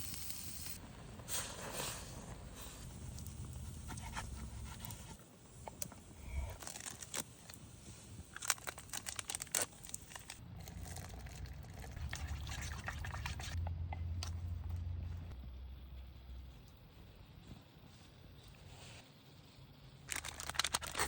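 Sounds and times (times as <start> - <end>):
packet crinkling: 6.6 - 7.3, 8.3 - 11.2, 20.1 - 21.0
low steady rumble: 10.4 - 17.4
liquid pouring: 10.6 - 13.6.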